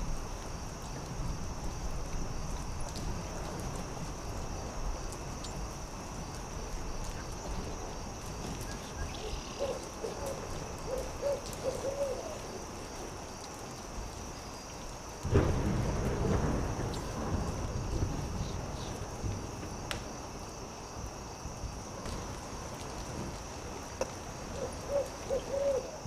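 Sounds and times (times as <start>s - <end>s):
campfire crackling: 0.0s - 26.0s
owl hooting: 9.2s - 12.4s, 24.6s - 26.0s.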